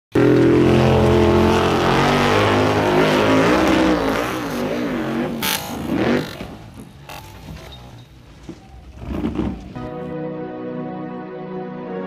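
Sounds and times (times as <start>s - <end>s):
vehicle engine revving: 0.1s - 8.0s.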